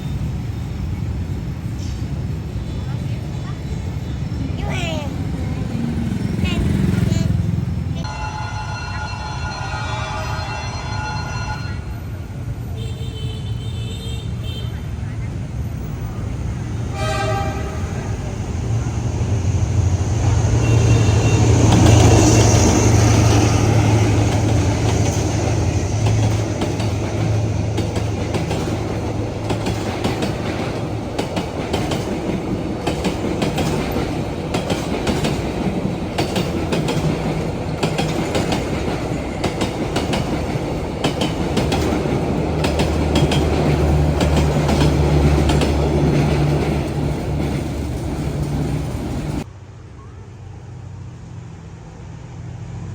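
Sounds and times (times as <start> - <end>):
locomotive engine hum: 0.0 - 52.9
train wheels clattering over rail joints: 21.6 - 49.5.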